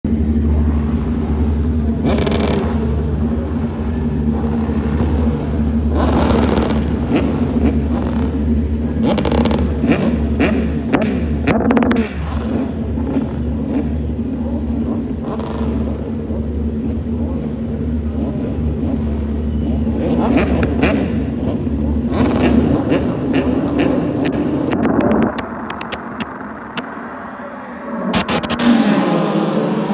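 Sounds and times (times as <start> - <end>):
racing motorcycle engines revving: 0.0 - 29.9.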